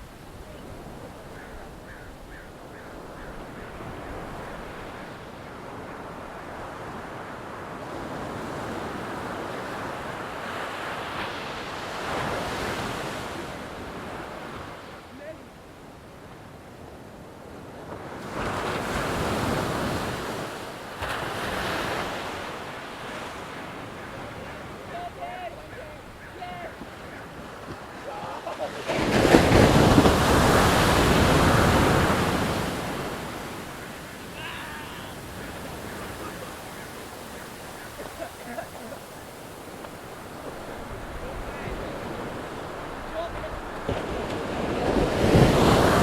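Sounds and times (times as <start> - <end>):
short bird calls: 0.0 - 6.2, 23.4 - 28.1, 30.7 - 41.1
ocean surf: 0.0 - 46.0
wind: 0.0 - 46.0.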